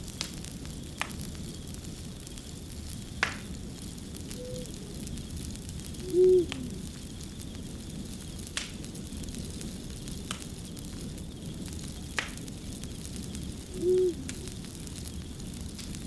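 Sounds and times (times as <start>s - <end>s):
fire crackling: 0.0s - 16.0s
owl hooting: 4.3s - 5.2s, 5.9s - 7.0s, 13.7s - 14.6s.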